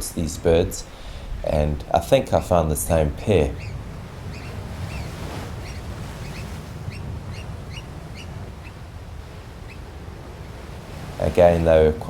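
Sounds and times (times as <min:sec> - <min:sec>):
oystercatchers piping calls: 0:03.1 - 0:08.9.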